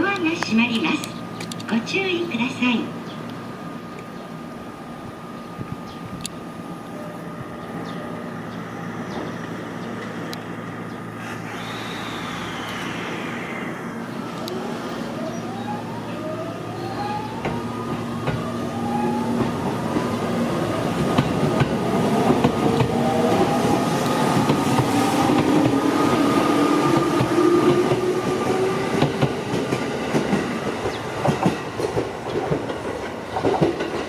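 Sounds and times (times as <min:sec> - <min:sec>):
train motors whining: 0:05.6 - 0:30.0.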